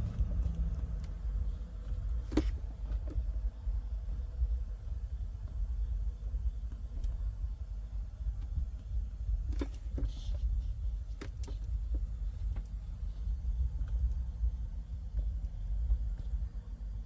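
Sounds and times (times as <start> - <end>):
low rumble inside car cabin: 0.0 - 17.0.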